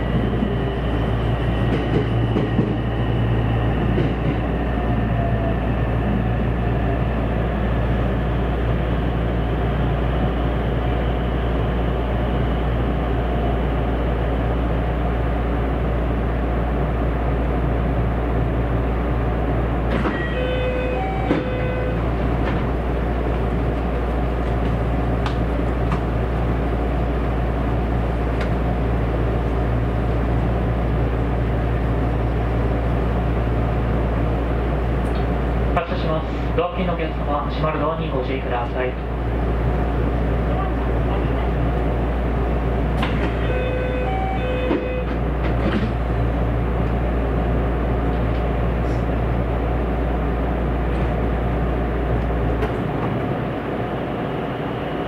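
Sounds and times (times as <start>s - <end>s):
train running noise inside cabin: 0.0s - 55.0s.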